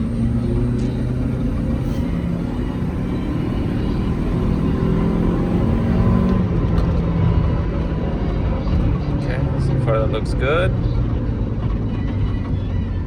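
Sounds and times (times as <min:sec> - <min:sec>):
car engine revving hard: 0:00.0 - 0:08.2.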